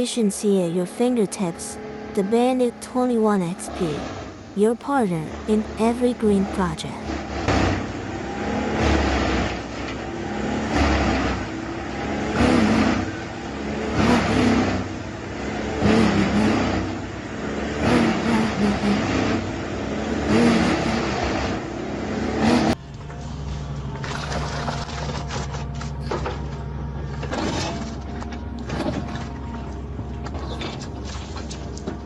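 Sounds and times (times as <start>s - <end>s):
wood chipper chipping logs: 7.0s - 32.0s.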